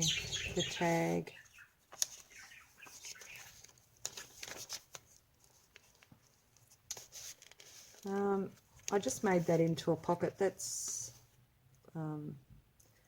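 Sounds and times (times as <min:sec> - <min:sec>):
paper and card rustling: 0:00.6 - 0:09.7.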